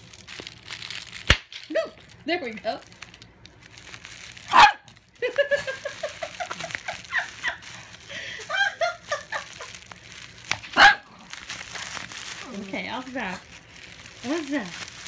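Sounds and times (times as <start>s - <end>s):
dog barking: 4.5s - 4.9s, 10.8s - 11.1s.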